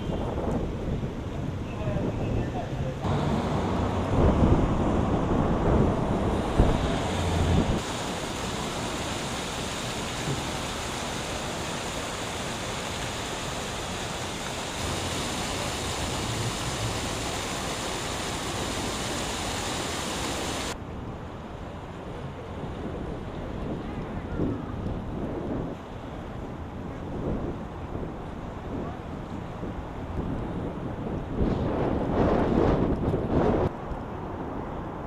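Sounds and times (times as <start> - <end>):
wind buffeting microphone: 0.0 - 20.8, 22.3 - 35.0
wind rushing hiss: 3.0 - 20.8.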